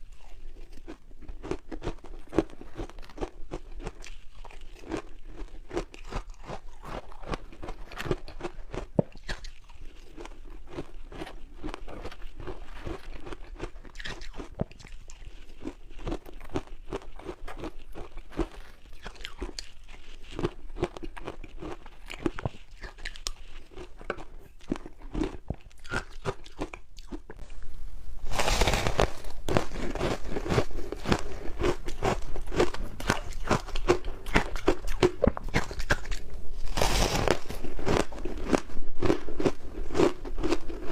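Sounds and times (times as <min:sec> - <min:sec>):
chewing ice cubes: 0:00.0 - 0:27.4, 0:29.4 - 0:40.9.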